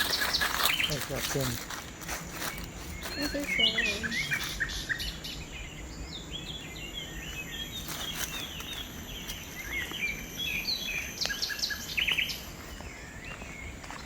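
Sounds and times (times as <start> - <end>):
birds chirping: 0.0 - 14.0
high-pitched insect drone: 6.6 - 12.8.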